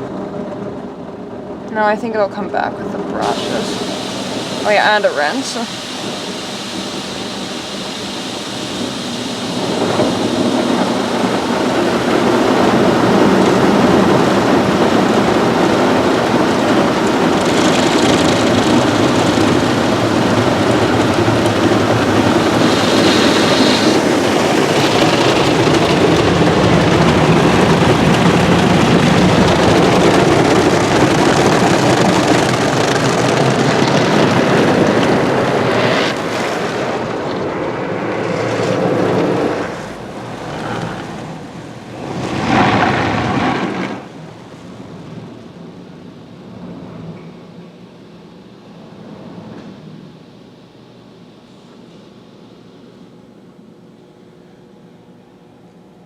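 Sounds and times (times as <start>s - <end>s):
car wash brushes and rinse water: 3.2s - 44.3s
water drumming on car body: 3.3s - 44.1s.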